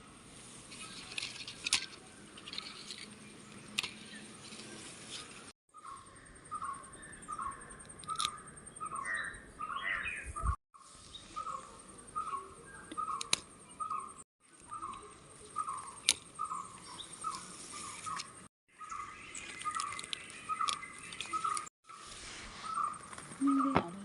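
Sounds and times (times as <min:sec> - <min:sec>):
sharp clicks: 0:12.9 - 0:13.5.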